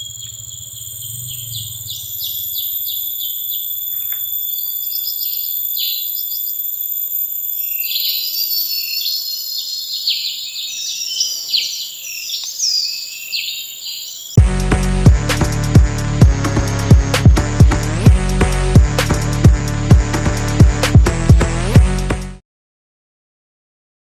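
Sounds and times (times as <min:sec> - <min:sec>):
birds chirping: 0:00.0 - 0:14.4
insects droning: 0:00.0 - 0:14.4.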